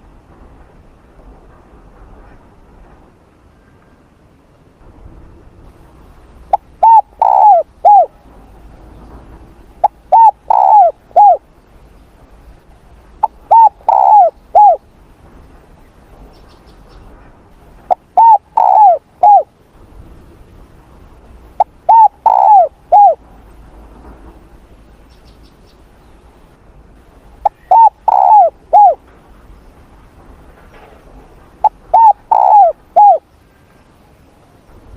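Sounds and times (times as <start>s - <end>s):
dove cooing: 6.5s - 8.2s, 9.8s - 11.5s, 13.2s - 14.8s, 17.9s - 19.5s, 21.6s - 23.2s, 27.4s - 29.0s, 31.6s - 33.3s.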